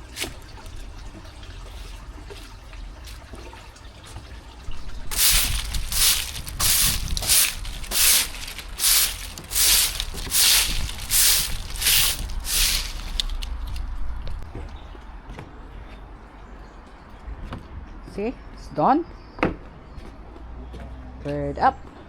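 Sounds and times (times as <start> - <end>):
broom sweeping dead leaves: 5.0 - 13.5.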